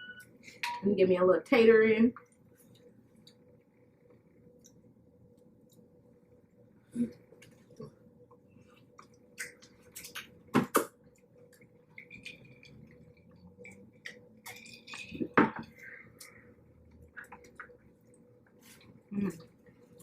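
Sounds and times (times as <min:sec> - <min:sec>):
wet chewing and mouth smacks: 0:08.8 - 0:14.9.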